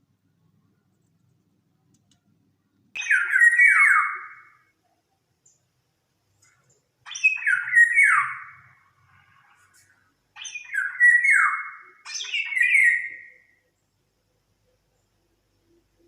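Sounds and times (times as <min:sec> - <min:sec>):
songbird singing: 0:03.0 - 0:05.7, 0:06.4 - 0:13.9.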